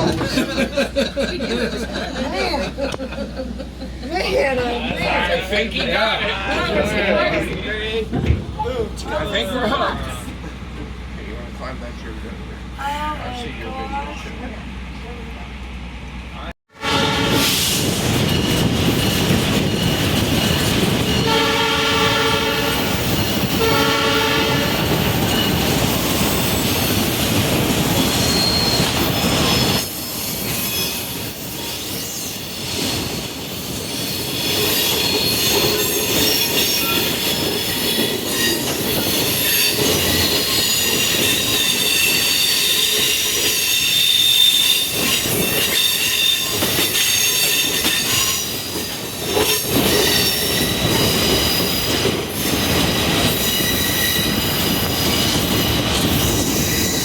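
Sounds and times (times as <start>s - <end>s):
train rolling on rails: 0.0s - 57.0s
locomotive horn blast: 16.7s - 17.8s, 21.2s - 25.0s
train wheels squealing: 17.3s - 57.0s.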